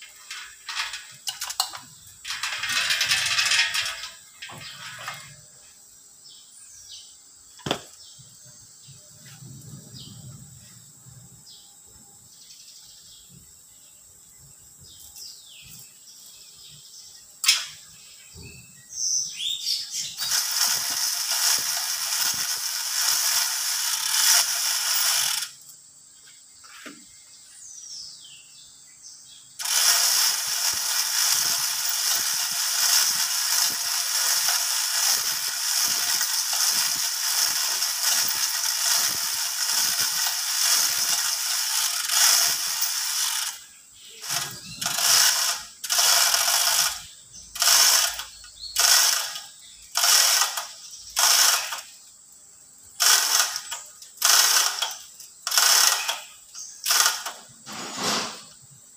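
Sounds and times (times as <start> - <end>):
chain hoist chain rattling: 0.0 - 5.4, 20.1 - 25.6, 29.6 - 51.9, 53.0 - 58.3
birds chirping faintly: 0.0 - 58.9.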